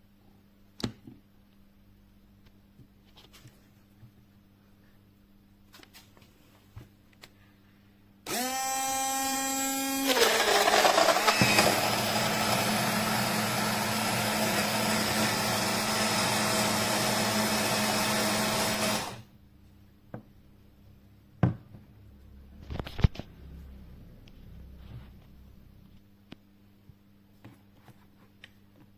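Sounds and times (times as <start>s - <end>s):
blender motor running: 8.3s - 19.3s.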